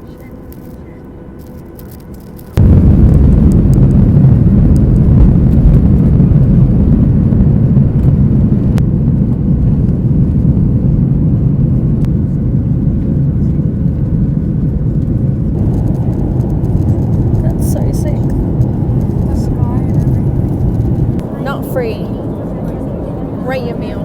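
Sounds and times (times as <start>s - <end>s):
jet engines at takeoff thrust: 0.0s - 24.0s.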